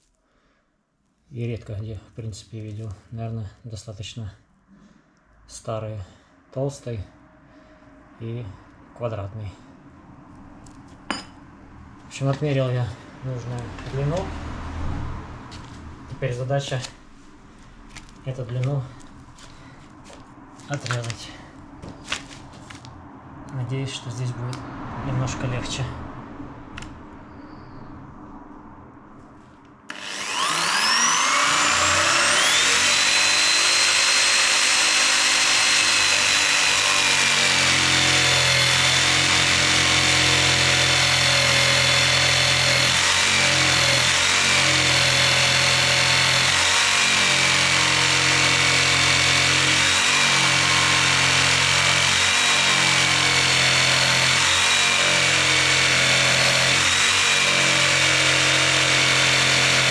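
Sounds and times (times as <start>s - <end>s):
electric jigsaw cutting log: 29.9s - 59.9s.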